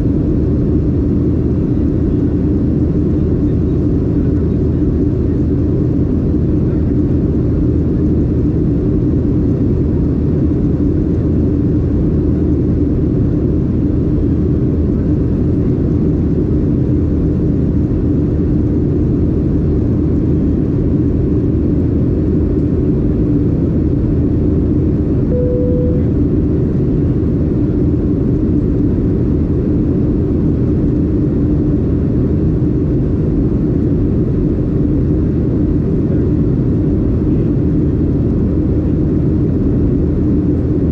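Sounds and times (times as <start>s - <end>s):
aircraft cabin engine drone: 0.0s - 40.9s
single tone: 25.3s - 26.4s.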